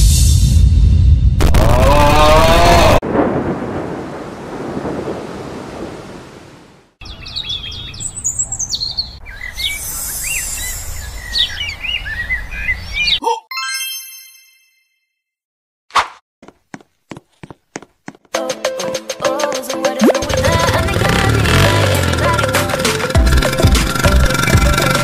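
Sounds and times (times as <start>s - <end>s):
loud rush of noise: 1.4s - 3.2s
birds chirping: 7.0s - 13.2s.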